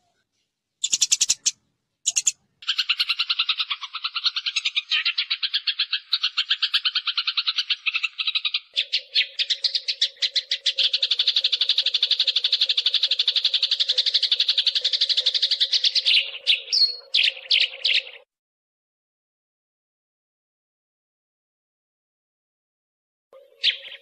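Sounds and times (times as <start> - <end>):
sparrows chattering harsh chirps: 0.8 - 18.2, 23.4 - 24.0.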